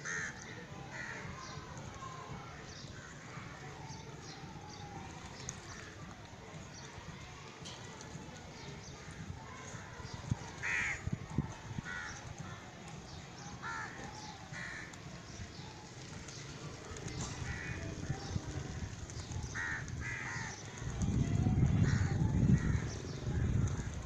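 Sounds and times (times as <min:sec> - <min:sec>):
steady background noise: 0:00.0 - 0:24.0
birds calling harshly: 0:08.6 - 0:11.1, 0:18.9 - 0:20.9.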